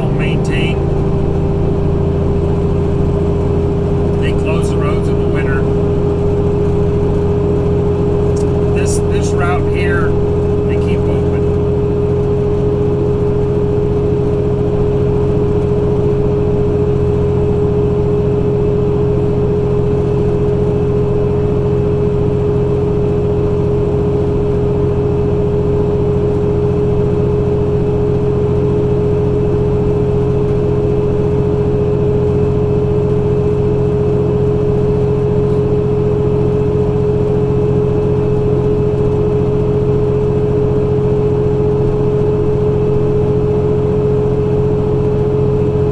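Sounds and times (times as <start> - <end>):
steady hum: 0.0 - 12.1
truck engine droning: 0.0 - 12.9.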